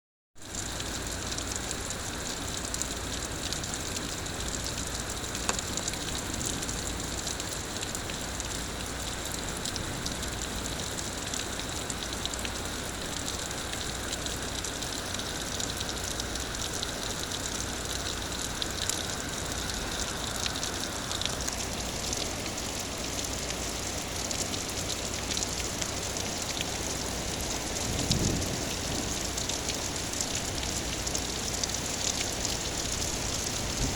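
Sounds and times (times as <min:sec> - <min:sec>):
heavy rain: 0:00.4 - 0:33.9
low thunder rumble: 0:27.3 - 0:30.8, 0:32.8 - 0:33.9.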